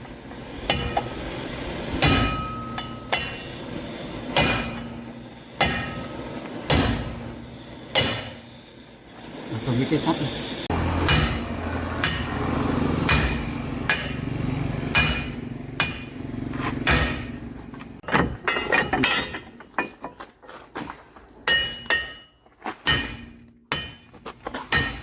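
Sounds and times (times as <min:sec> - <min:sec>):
hammer striking steel: 0:00.6 - 0:08.5, 0:10.9 - 0:17.4, 0:18.1 - 0:19.9, 0:21.4 - 0:25.0.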